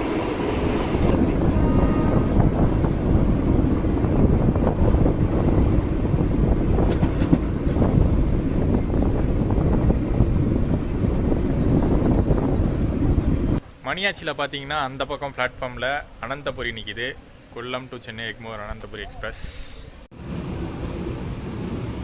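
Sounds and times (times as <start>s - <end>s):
train wheels rumbling on rails: 0.0s - 13.6s.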